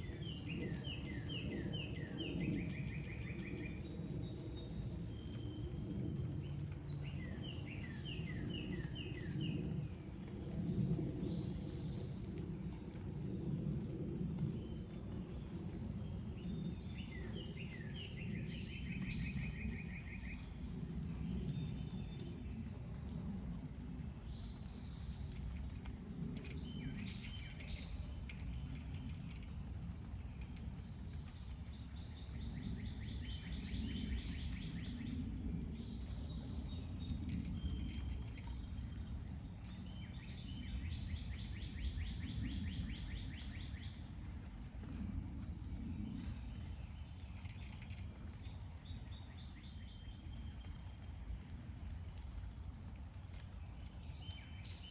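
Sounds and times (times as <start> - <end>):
birds chirping and trilling: 15.6 - 22.6, 24.2 - 44.1.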